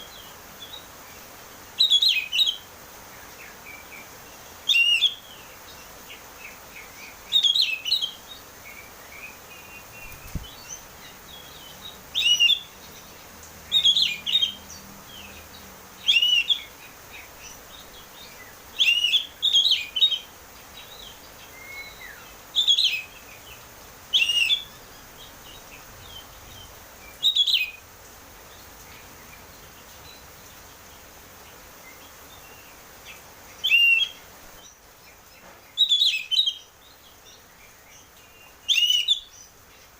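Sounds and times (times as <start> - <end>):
bird singing whistled phrases: 4.7 - 5.2, 7.3 - 8.2, 12.2 - 12.7, 16.1 - 16.7, 18.8 - 20.3, 21.5 - 23.1, 24.1 - 24.8, 27.2 - 27.8, 33.6 - 34.2, 35.8 - 36.7, 38.6 - 39.3.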